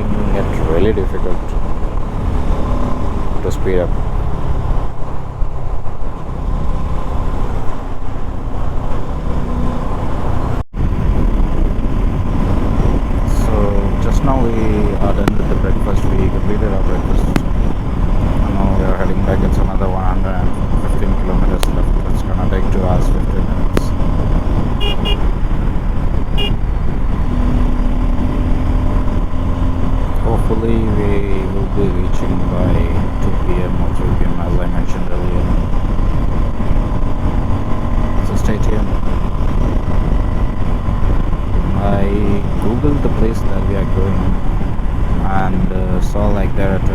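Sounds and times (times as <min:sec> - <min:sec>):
motorcycle engine and tyre rumble: 0:00.0 - 0:46.9
wind buffeting microphone: 0:00.0 - 0:46.9
high-pitched horn toots: 0:24.8 - 0:25.3, 0:26.4 - 0:26.6.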